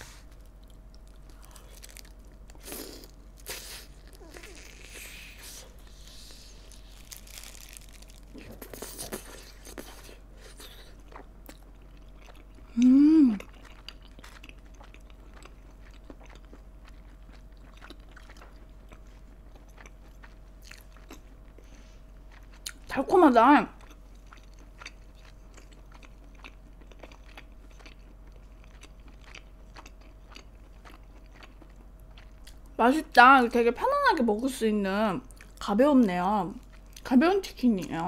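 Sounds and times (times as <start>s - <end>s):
crunchy chewing and biting: 0.0s - 22.9s, 23.8s - 32.7s
person humming mm: 12.7s - 13.4s.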